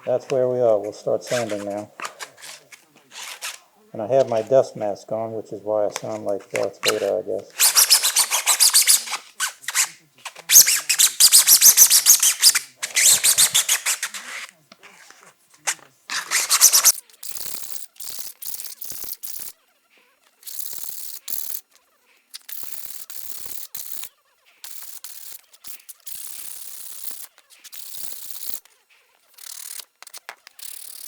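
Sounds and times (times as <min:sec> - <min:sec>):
sandpaper rasping on plastic: 0:01.3 - 0:03.6, 0:06.6 - 0:19.5, 0:22.4 - 0:28.7, 0:29.3 - 0:31.0.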